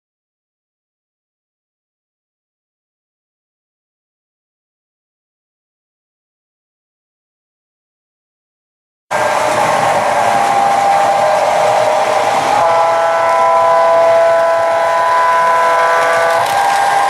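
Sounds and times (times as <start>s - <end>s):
locomotive air horn: 9.1s - 17.0s
locomotive engine running: 9.1s - 17.0s.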